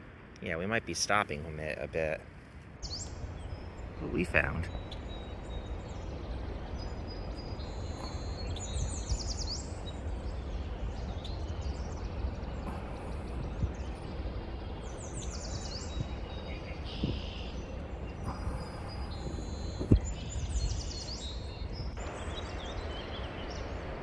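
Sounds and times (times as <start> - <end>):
steady low rumble: 0.0 - 24.0
songbirds singing: 0.4 - 24.0.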